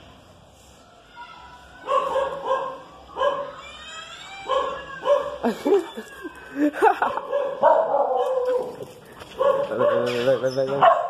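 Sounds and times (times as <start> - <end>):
dogs barking and yipping: 1.8 - 3.7, 4.3 - 11.0
dogs whining: 3.2 - 8.8.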